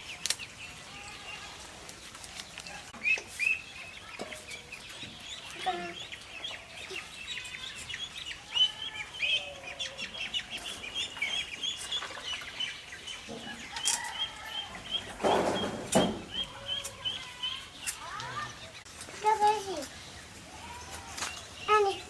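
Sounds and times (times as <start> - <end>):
chickens clucking: 0.0 - 22.0
rustling: 1.4 - 3.6.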